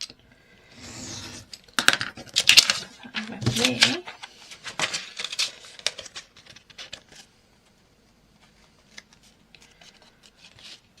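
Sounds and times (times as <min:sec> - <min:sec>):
paper rustling: 0:02.4 - 0:07.3.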